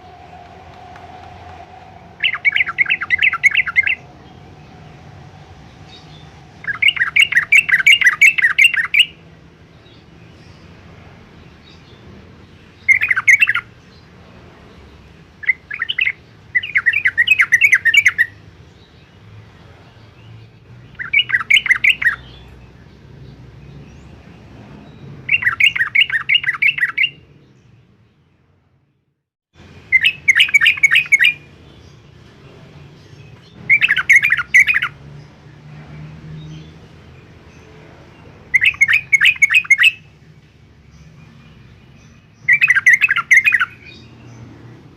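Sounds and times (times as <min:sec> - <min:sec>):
bird singing bubbling notes: 0:00.0 - 0:09.1.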